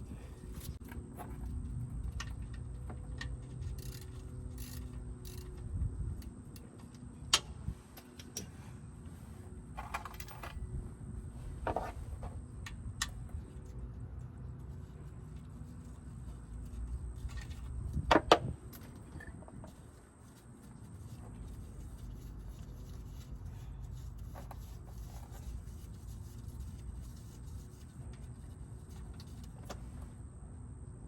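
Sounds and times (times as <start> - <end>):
low steady rumble: 0.0 - 31.0
tools and parts clinking: 0.4 - 8.7, 9.7 - 10.8.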